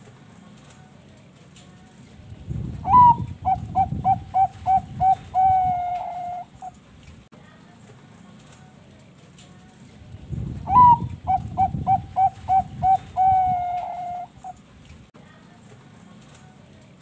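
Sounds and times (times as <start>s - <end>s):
dove cooing song: 2.8s - 6.8s, 10.6s - 14.6s.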